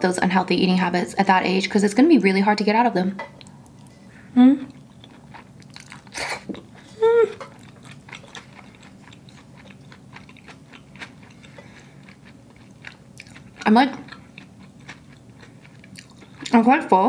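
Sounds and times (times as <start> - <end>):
person humming mm: 4.3 - 4.8, 6.2 - 7.4
person chewing: 4.6 - 16.6.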